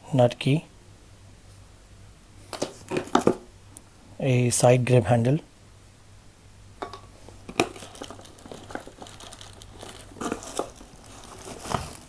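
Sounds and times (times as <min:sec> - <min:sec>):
packaging crinkling and rustling: 0:07.2 - 0:12.0.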